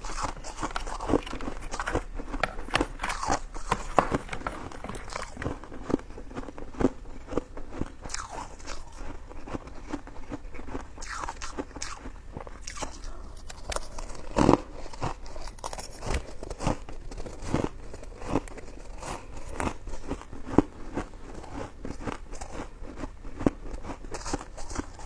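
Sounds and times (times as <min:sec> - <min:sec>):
biting into rice cake: 0:00.0 - 0:05.8.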